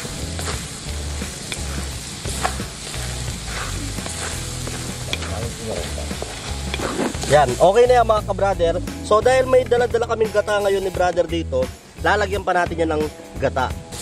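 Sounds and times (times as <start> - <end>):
spatula scraping a pan: 0.0 - 7.7
food sizzling in oil: 0.0 - 14.0.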